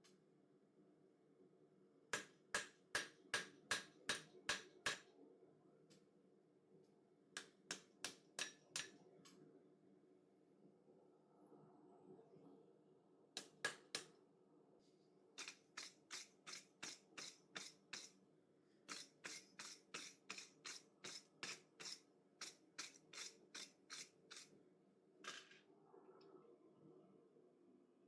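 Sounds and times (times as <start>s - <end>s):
hammer striking hot steel on anvil: 2.2s - 5.0s, 7.4s - 8.9s.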